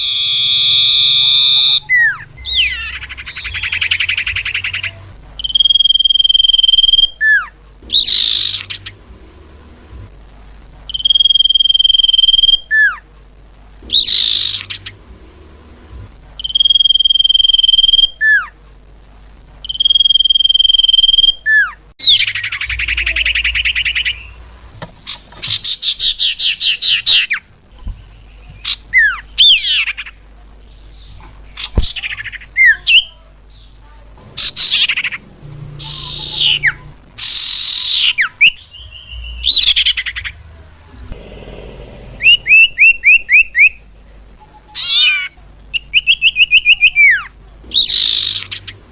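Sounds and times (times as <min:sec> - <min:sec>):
bird whistling song: 0:00.0 - 0:08.9, 0:10.9 - 0:13.0, 0:13.9 - 0:14.9, 0:16.4 - 0:18.5, 0:19.6 - 0:24.4, 0:28.0 - 0:30.1, 0:35.8 - 0:40.4, 0:42.2 - 0:43.8, 0:44.8 - 0:48.8
harsh rasping bird note: 0:34.2 - 0:40.4, 0:41.0 - 0:43.8
buzzy trilled bird notes: 0:34.3 - 0:40.5.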